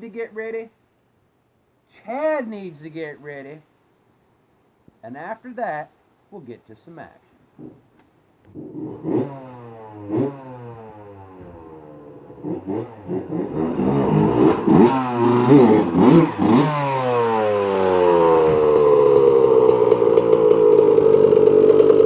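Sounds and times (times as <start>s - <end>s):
dirt bike engine revving: 8.5s - 22.0s.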